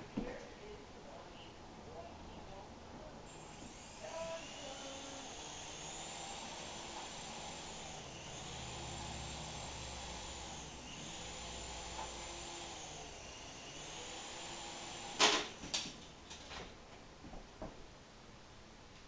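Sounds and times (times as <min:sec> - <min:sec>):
rc helicopter motor whine: 0:03.3 - 0:15.5.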